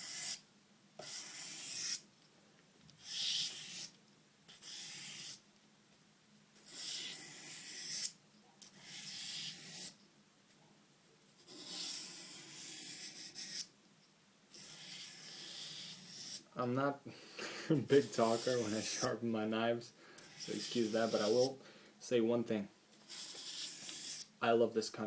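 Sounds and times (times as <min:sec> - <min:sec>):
knife rasping on sandpaper: 0:00.0 - 0:00.4, 0:01.0 - 0:02.0, 0:03.0 - 0:03.9, 0:04.5 - 0:05.4, 0:06.6 - 0:10.0, 0:11.4 - 0:13.7, 0:14.5 - 0:16.5, 0:17.8 - 0:19.2, 0:20.2 - 0:21.6, 0:23.0 - 0:24.3.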